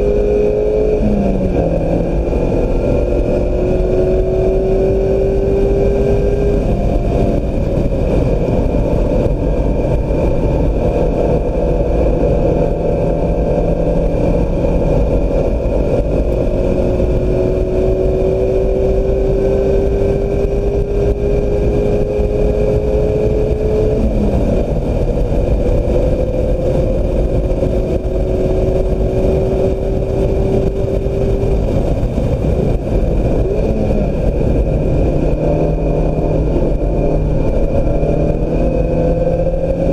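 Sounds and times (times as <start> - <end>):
car engine at full throttle: 0.0 - 39.9
wind and tyre noise: 0.0 - 39.9.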